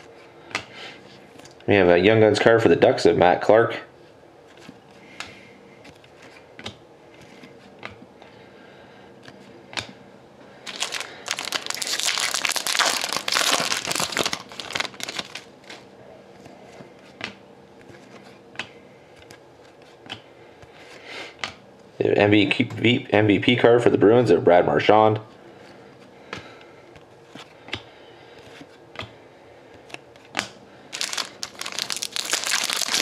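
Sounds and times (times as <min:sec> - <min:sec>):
foil wrapper crinkling and tearing: 0:10.6 - 0:15.8, 0:30.9 - 0:33.0
cards clicking and rustling: 0:10.7 - 0:15.8, 0:29.8 - 0:33.0.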